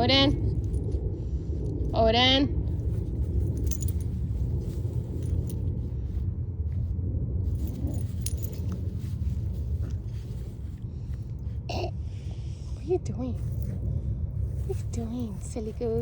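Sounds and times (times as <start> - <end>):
steady low rumble: 0.0 - 16.0
metallic jingling and clicks: 2.7 - 5.8, 7.5 - 10.5, 13.4 - 13.8.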